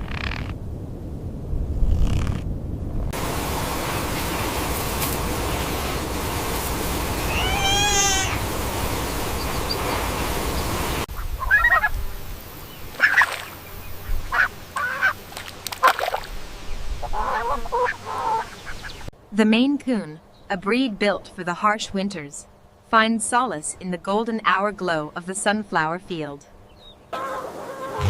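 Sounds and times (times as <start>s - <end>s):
cat meowing: 7.3s - 8.4s
short animal calls: 7.3s - 8.4s.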